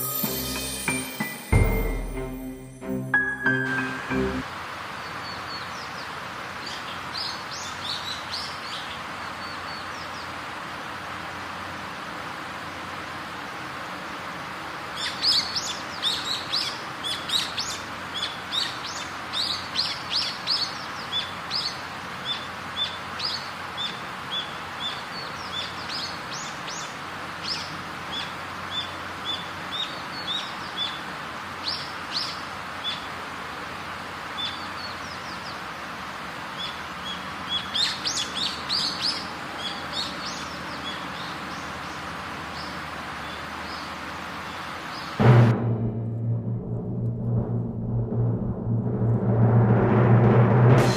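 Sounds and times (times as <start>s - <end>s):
background hiss: 0.0s - 45.3s
small birds chirping: 5.0s - 10.4s, 14.8s - 33.2s, 34.3s - 45.2s.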